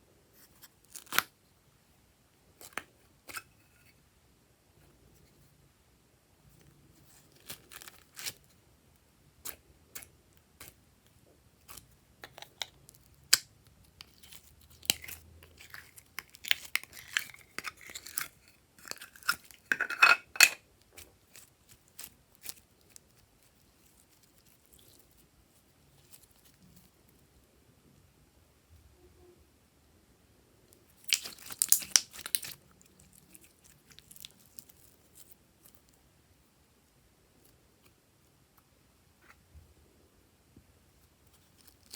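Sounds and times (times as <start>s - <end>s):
slime clicking and popping: 31.0s - 32.6s.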